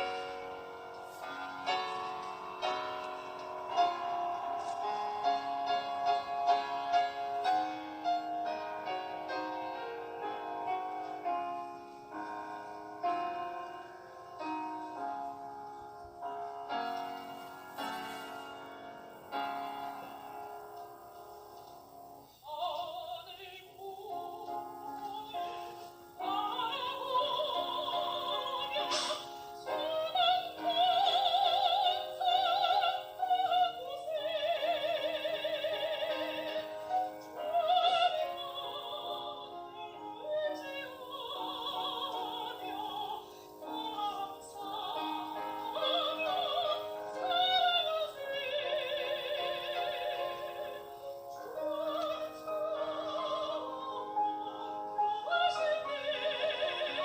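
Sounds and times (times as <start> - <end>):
soprano singing operatically: 22.1 - 57.0.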